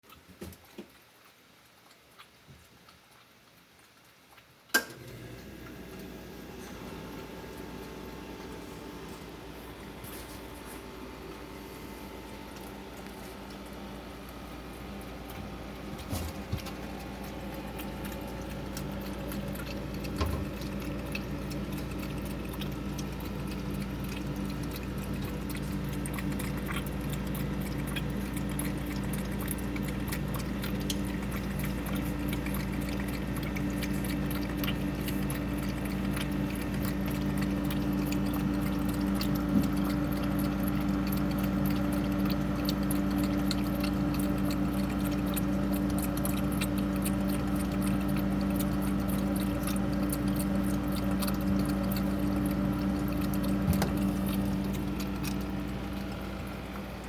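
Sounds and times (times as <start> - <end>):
refrigerator hum: 0.0 - 57.0
cat lapping water: 5.6 - 57.0
light clicks and splashes: 12.4 - 57.0.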